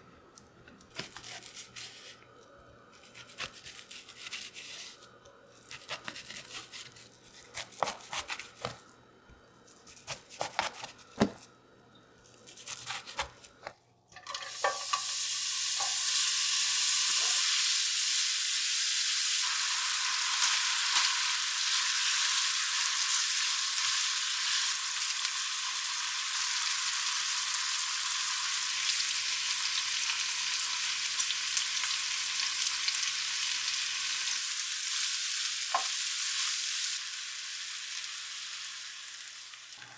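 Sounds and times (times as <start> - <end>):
food sizzling in hot pan: 14.2 - 39.9.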